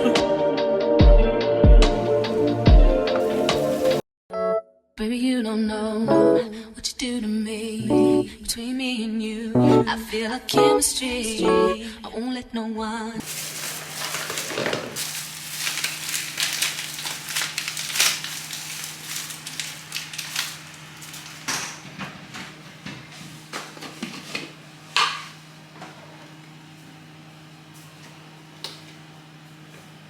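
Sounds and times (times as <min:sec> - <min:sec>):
rustling: 0:02.0 - 0:04.0, 0:13.2 - 0:21.9
low room hum: 0:13.0 - 0:30.0.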